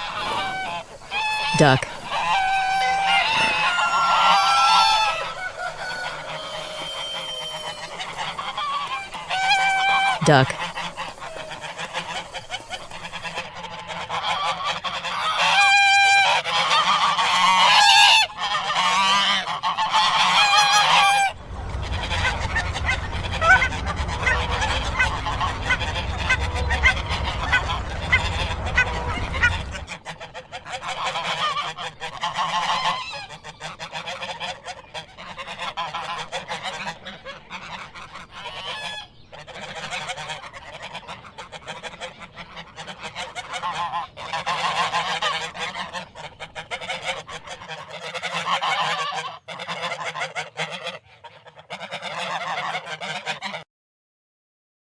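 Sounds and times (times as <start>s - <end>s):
ducks quacking: 0.0s - 53.6s
low rumble: 21.2s - 30.0s.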